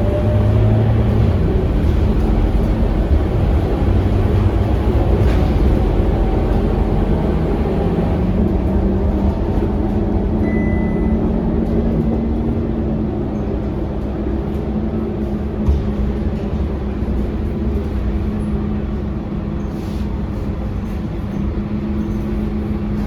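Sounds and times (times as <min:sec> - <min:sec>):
bus diesel engine running: 0:00.0 - 0:23.0
road noise: 0:00.0 - 0:23.0
short high beep: 0:10.4 - 0:11.3.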